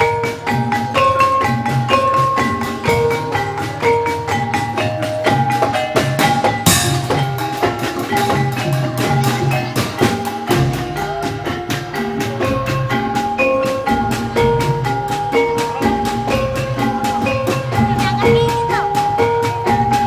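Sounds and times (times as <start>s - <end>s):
struck percussion melody: 0.0s - 20.0s
drum pulse: 6.7s - 11.0s.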